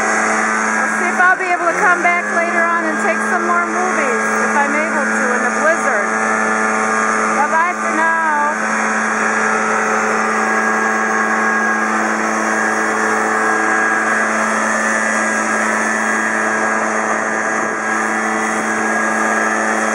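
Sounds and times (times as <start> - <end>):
leaf blower engine hum: 0.0 - 19.9
rush of air from blower: 0.0 - 19.9.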